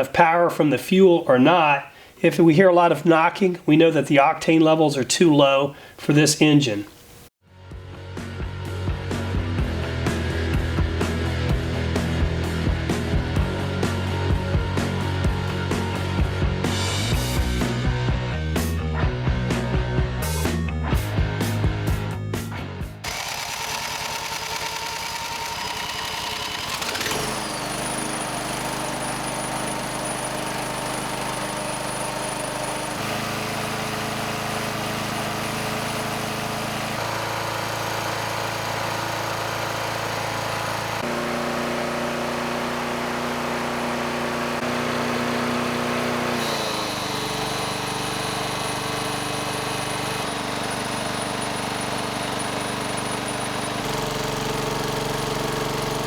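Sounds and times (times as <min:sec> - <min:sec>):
lawn mower engine running: 0:23.0 - 0:56.0.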